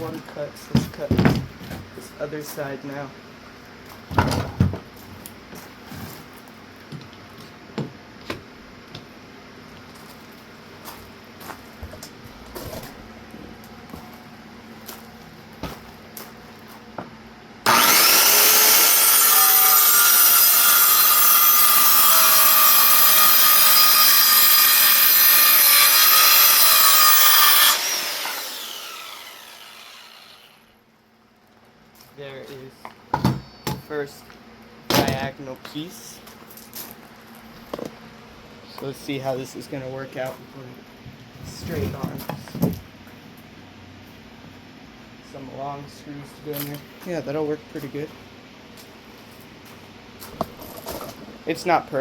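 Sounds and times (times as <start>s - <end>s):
electric saw cutting wood: 17.6s - 30.7s.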